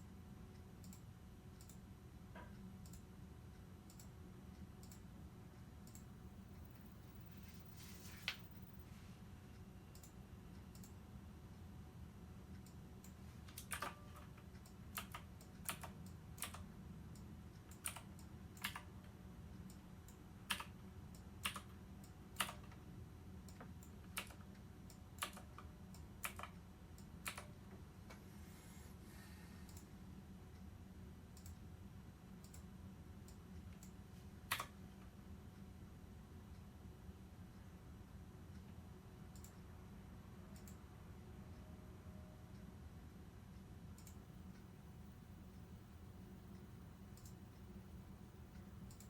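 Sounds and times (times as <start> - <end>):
faint clicks: 0.6 - 1.8, 2.4 - 5.1, 5.8 - 6.9, 9.5 - 11.0, 29.7 - 29.9, 31.4 - 31.7, 32.4 - 32.7, 39.3 - 39.7, 40.6 - 40.8, 44.0 - 44.7, 46.5 - 47.9, 48.5 - 49.0.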